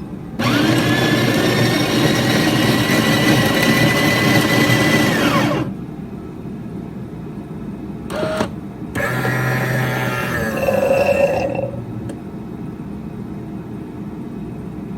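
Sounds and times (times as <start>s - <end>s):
low steady machine hum: 0.0s - 14.9s
espresso machine motor whine: 0.4s - 5.8s, 8.1s - 12.1s.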